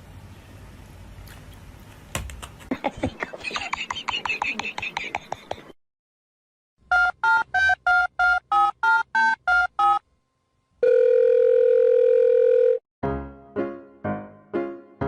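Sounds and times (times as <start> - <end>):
piano notes: 13.0 - 15.0.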